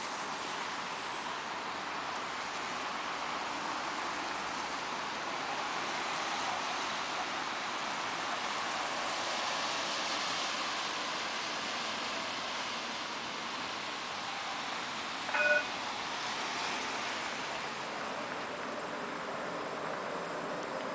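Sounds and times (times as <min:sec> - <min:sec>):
brief pitched tones: 0:15.3 - 0:15.8.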